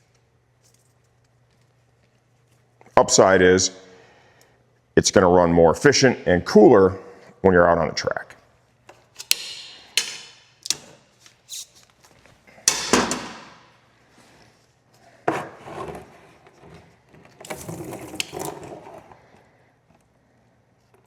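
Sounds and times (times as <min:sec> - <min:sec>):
tools knocking: 0:09.2 - 0:11.0, 0:12.7 - 0:13.6
parts rattling: 0:09.2 - 0:11.8.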